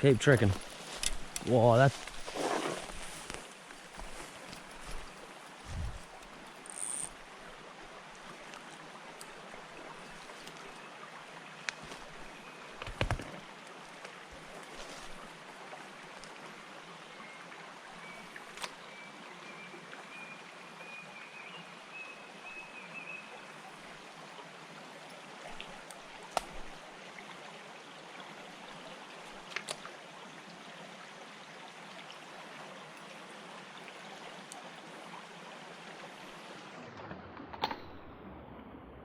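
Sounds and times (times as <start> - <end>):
river water running: 0.0 - 37.2.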